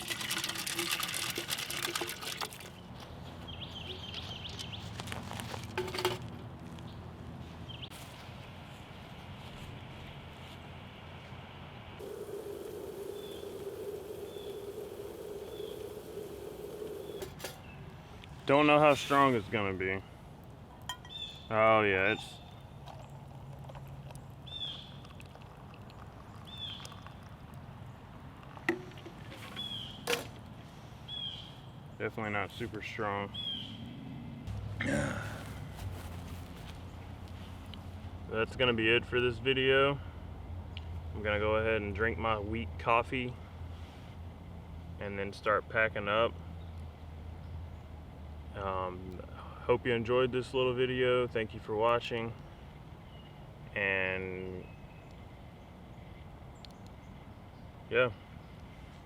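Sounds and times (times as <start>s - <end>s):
steady low hum: 9.6s - 18.2s
sharp clicks: 12.0s - 17.6s
bird chirping: 12.0s - 17.8s.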